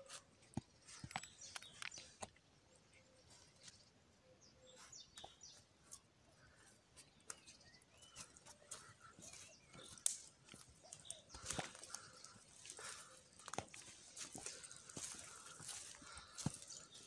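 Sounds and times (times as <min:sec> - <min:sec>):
faint bird chirps: 0:00.0 - 0:17.0.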